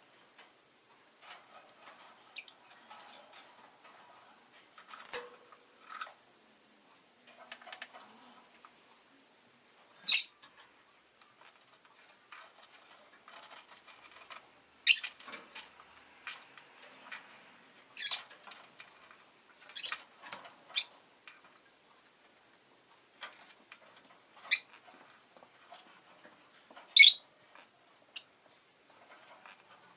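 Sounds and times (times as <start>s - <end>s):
faint clicks and rustling: 0.0s - 29.9s
bird shrill chirps: 27.0s - 27.2s.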